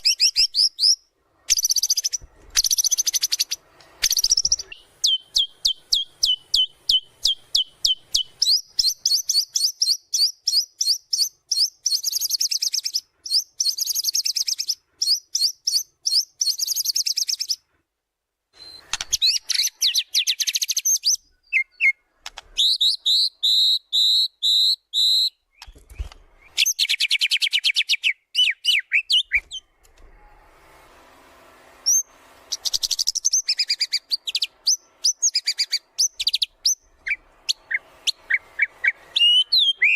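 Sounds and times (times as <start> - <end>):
songbird singing rapid trills: 0.0 - 17.6.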